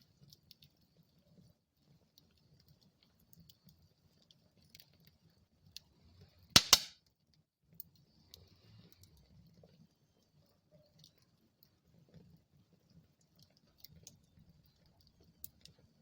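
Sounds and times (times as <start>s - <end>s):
wood fire crackling: 0.0s - 6.0s, 6.6s - 6.9s, 12.8s - 15.8s
loud sharp pop of fire: 6.6s - 6.9s.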